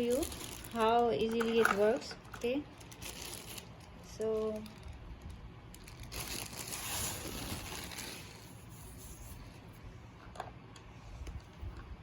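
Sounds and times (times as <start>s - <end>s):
soft rustling crinkling: 0.0s - 9.8s.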